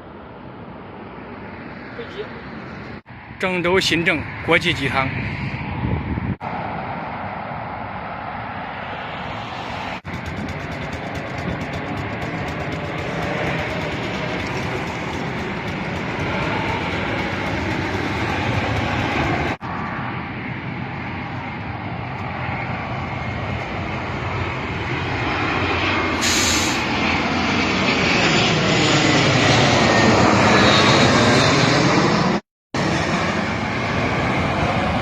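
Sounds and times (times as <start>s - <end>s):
jet engine roar overhead: 0.0s - 35.0s
vehicle engine running: 9.6s - 19.7s.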